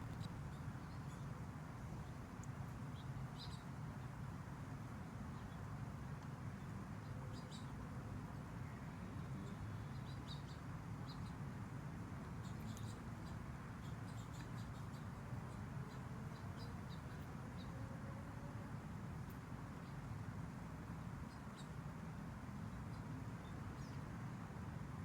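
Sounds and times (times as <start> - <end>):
low background rumble: 0.0 - 0.6
faint bird chirps: 12.4 - 17.8.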